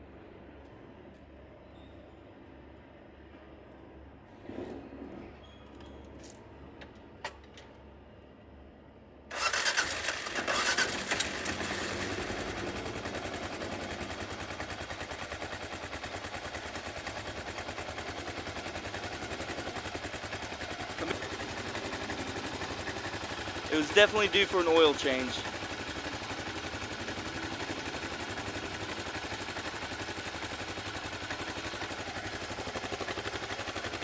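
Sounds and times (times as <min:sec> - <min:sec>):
motorcycle engine idling: 0:09.3 - 0:34.0.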